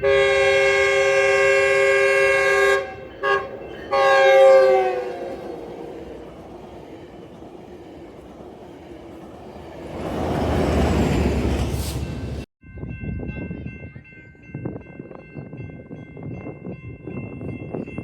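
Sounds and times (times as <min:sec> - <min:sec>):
locomotive air horn: 0:00.0 - 0:05.7
passing train rumble: 0:00.0 - 0:18.0.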